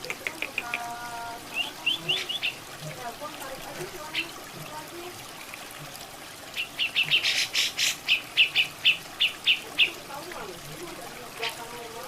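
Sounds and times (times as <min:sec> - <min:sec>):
bird chattering: 0:00.0 - 0:02.6, 0:06.6 - 0:10.2
running water trickling: 0:00.0 - 0:12.0.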